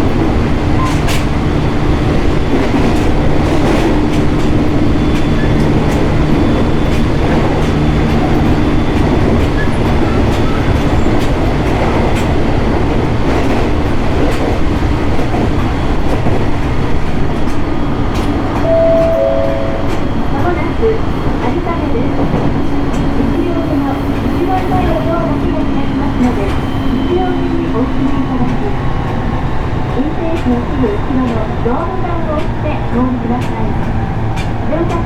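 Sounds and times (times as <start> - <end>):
train wheels rumbling on rail: 0.0 - 18.4, 20.5 - 35.0.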